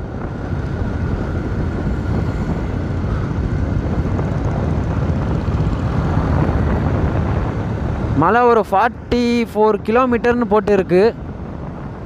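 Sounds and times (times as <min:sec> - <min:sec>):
motorcycle engine running: 0:00.0 - 0:08.2
wind rushing on microphone: 0:00.0 - 0:12.0.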